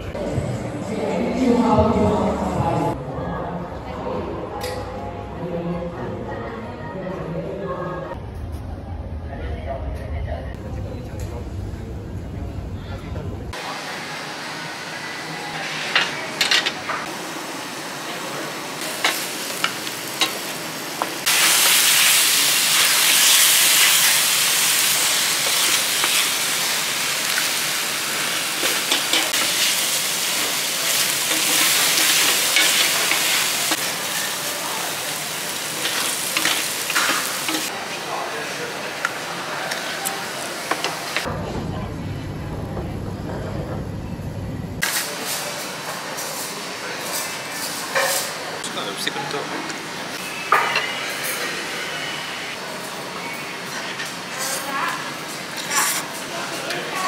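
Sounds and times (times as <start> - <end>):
food sizzling in a steel pan: 15.9 - 38.0.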